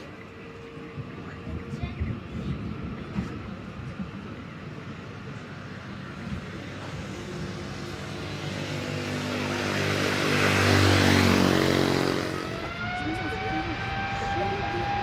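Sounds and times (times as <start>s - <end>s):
jet airliner engines droning: 0.0s - 15.0s.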